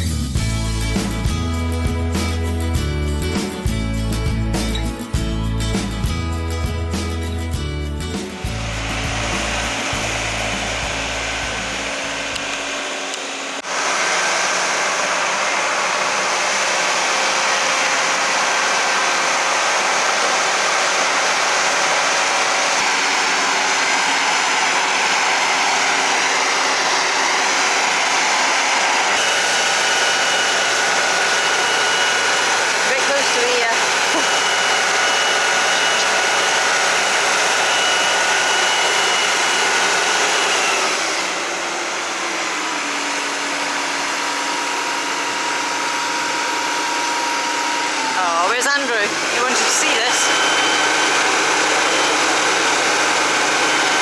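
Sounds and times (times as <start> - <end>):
background music: 0.0 - 12.4
power tool rushing noise: 0.0 - 54.0.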